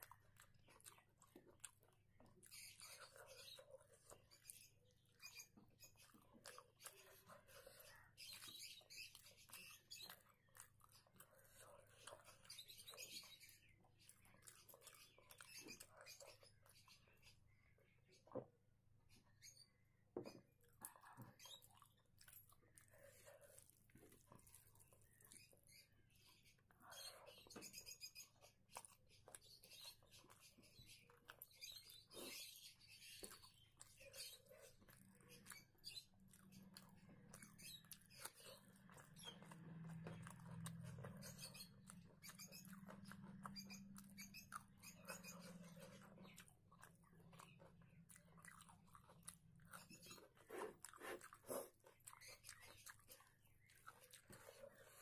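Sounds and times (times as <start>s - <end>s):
chewing soft rice: 0.0s - 19.6s, 20.4s - 55.0s
fingers mixing rice on a plate: 20.4s - 55.0s.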